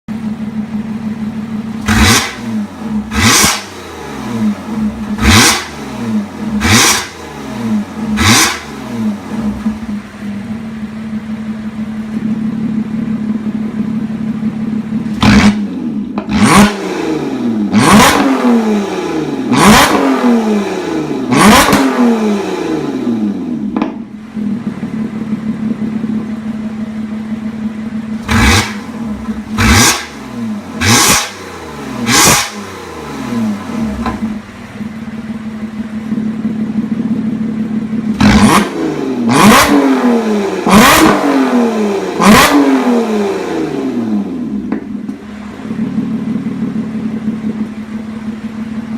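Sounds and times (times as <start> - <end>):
car engine idling and revving: 0.1 - 48.9.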